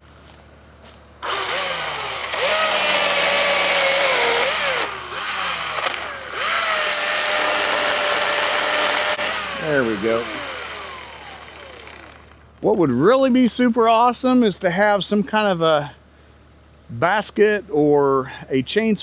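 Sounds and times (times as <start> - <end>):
electric chainsaw cutting wood: 1.2 - 12.4.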